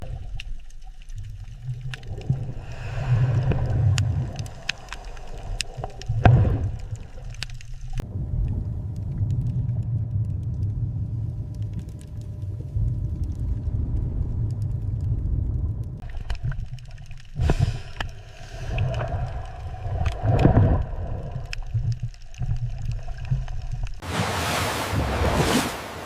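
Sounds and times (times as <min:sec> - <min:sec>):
underwater low rumble: 0:00.0 - 0:24.2
water gurgling and bubbling: 0:01.2 - 0:08.9, 0:16.0 - 0:25.6.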